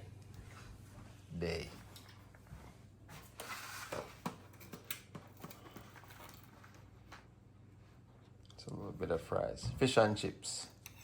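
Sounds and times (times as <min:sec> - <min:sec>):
utensils scraping on plates: 0:10.8 - 0:11.0.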